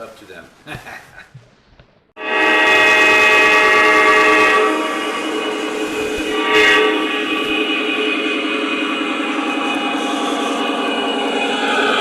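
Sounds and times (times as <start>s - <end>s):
train horn: 2.2s - 10.6s.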